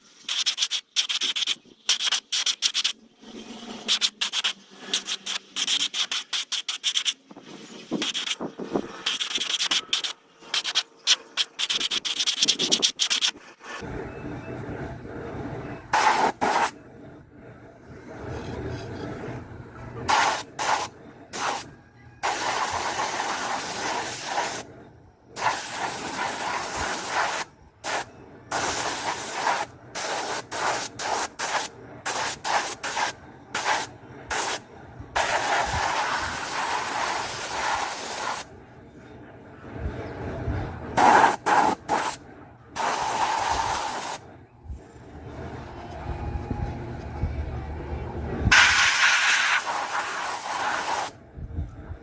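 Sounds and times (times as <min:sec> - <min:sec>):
compressed air hissing: 0:07.8 - 0:10.8, 0:15.9 - 0:16.8, 0:20.1 - 0:24.7, 0:25.4 - 0:34.6, 0:35.2 - 0:38.5, 0:41.0 - 0:42.2, 0:42.8 - 0:44.2, 0:48.5 - 0:51.2.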